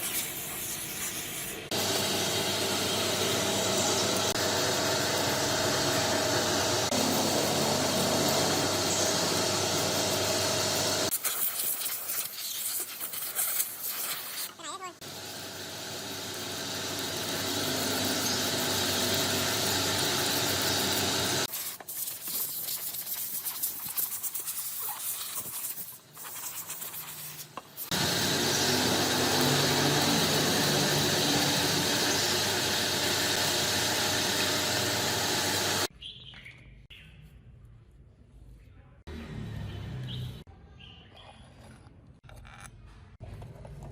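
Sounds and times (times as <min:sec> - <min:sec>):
motorized tool running: 0:01.7 - 0:11.1, 0:15.0 - 0:21.5, 0:27.9 - 0:35.9
scraping and clicking handling noise: 0:41.2 - 0:43.9.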